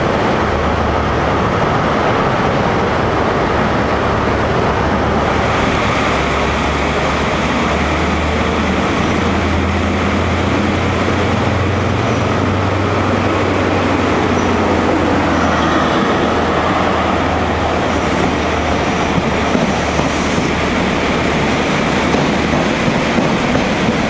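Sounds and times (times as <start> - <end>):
train wheels rolling on rails: 0.0 - 24.0
diesel engine humming: 4.2 - 22.1.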